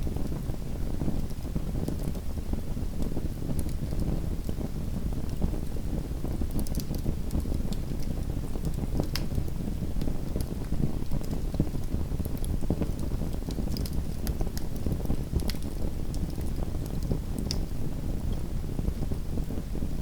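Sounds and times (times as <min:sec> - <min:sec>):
low rumble of fire flames: 0:00.0 - 0:20.0
wood fire crackles and pops: 0:00.1 - 0:02.3, 0:02.9 - 0:19.6.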